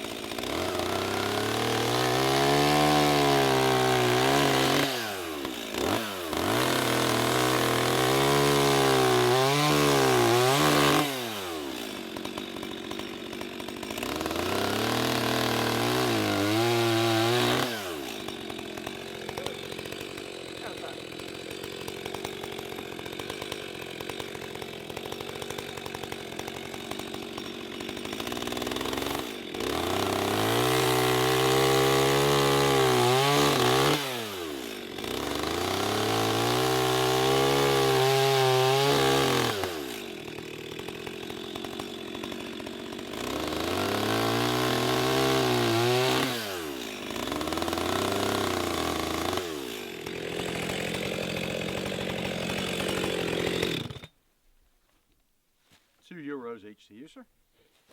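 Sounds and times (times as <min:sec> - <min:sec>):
chainsaw cutting wood: 0:00.0 - 0:54.2.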